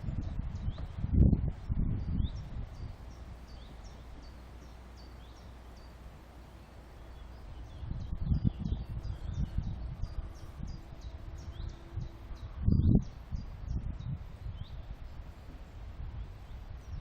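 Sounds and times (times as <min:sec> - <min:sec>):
low outdoor rumble: 0:00.0 - 0:17.0
small bird chirping: 0:01.9 - 0:06.0, 0:06.6 - 0:15.3.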